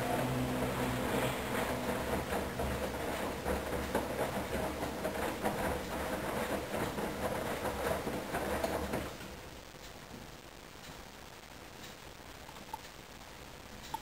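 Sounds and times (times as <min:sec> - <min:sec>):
washing machine motor hum: 0:00.0 - 0:09.6.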